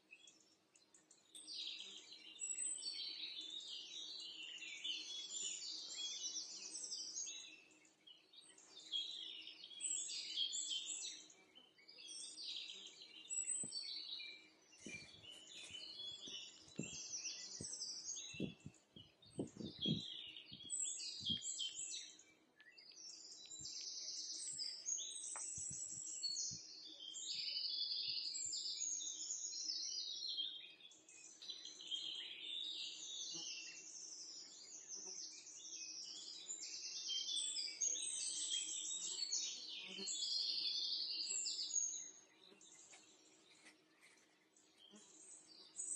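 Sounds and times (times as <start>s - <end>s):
small birds chirping and twittering: 0.0s - 45.9s.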